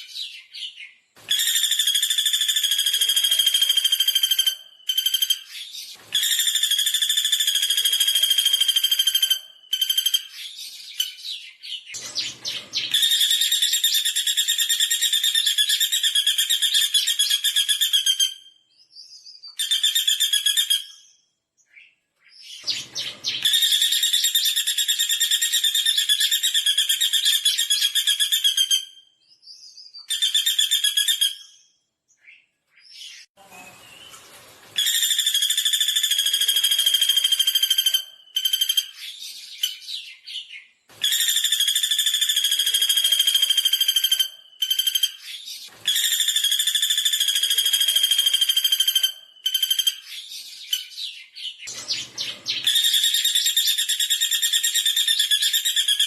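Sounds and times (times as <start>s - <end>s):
woodpecker rattling trill: 1.4s - 10.7s, 12.0s - 18.0s, 34.8s - 39.4s, 41.1s - 50.2s, 51.7s - 56.0s.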